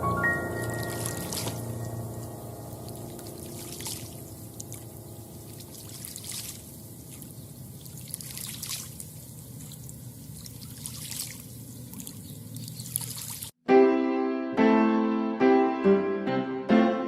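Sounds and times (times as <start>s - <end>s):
water splashes: 0.5s - 13.6s
water lapping at shoreline: 0.6s - 13.6s.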